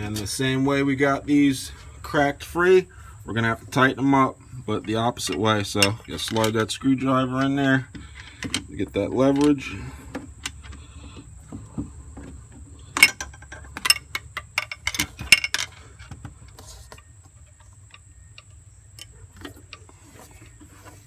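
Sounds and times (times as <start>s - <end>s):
hand tools clinking on metal: 3.4s - 10.8s, 12.9s - 16.0s.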